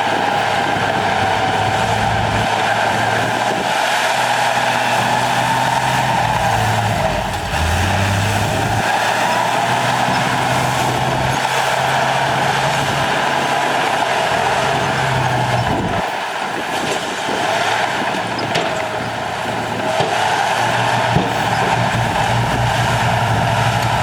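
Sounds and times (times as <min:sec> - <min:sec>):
diesel earthmoving machinery: 0:00.0 - 0:24.0.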